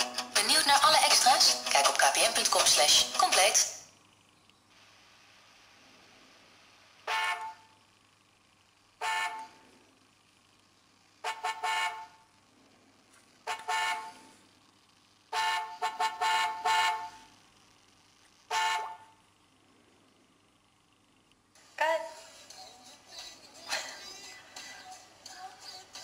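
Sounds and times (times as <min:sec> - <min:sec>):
car horn honking: 0:07.0 - 0:07.8, 0:09.0 - 0:09.6, 0:11.2 - 0:12.3, 0:13.4 - 0:14.3, 0:15.3 - 0:17.3, 0:18.5 - 0:19.2.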